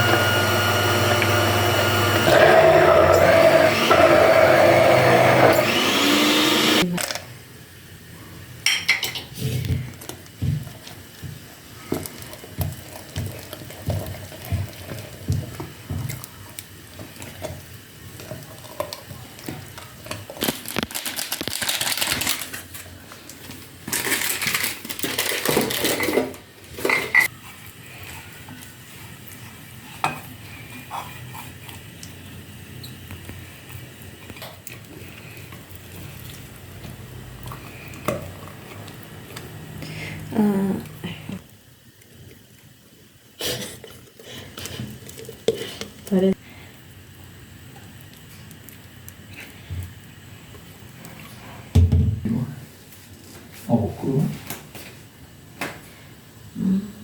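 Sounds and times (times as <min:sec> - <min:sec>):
blender running: 0:00.0 - 0:06.9
kitchen utensils knocking and scraping: 0:25.0 - 0:27.3.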